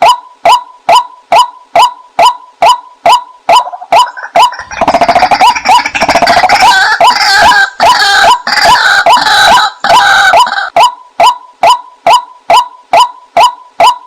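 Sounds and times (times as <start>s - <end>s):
waterhen calling repeated notes: 0.0s - 14.0s
harsh noisy bird calls: 3.7s - 10.7s.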